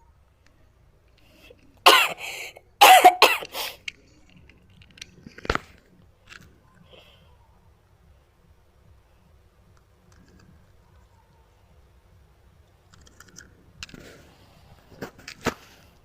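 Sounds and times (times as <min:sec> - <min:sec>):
person coughing: 0:01.9 - 0:03.8.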